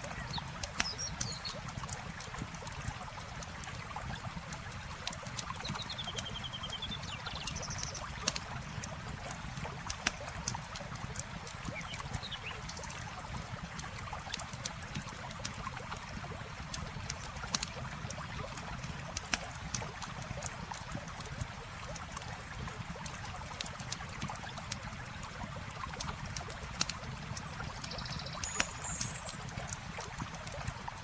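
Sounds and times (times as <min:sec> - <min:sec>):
bird chirp: 0:00.1 - 0:01.6, 0:05.6 - 0:08.1, 0:27.8 - 0:29.4.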